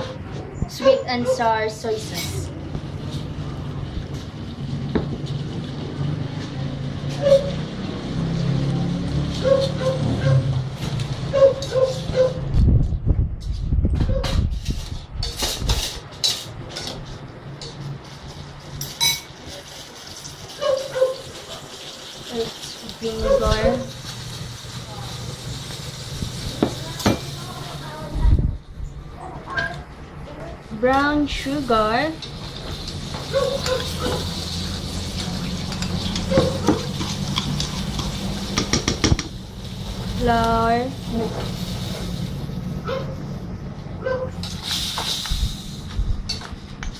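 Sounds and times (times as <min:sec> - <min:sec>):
dishes and utensils clinking: 0:00.8 - 0:02.5, 0:14.2 - 0:19.7, 0:32.2 - 0:39.4
spoon tapping against bowl: 0:35.7 - 0:39.3.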